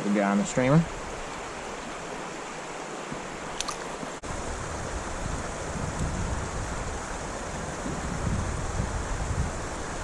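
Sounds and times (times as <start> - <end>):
creek water rushing: 0.0 - 10.0
wind buffeting microphone: 4.2 - 10.0.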